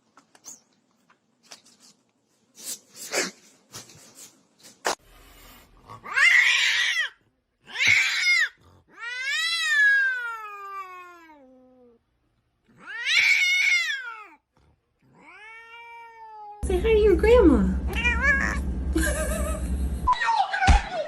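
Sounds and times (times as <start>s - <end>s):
cat yowling: 6.0s - 11.9s, 12.7s - 14.4s, 15.1s - 16.6s, 17.9s - 18.6s.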